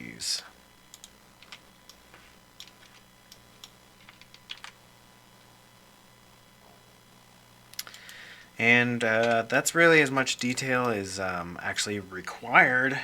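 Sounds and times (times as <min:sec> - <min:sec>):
low steady hum: 0:00.0 - 0:13.0
computer keyboard clicks: 0:04.0 - 0:04.8.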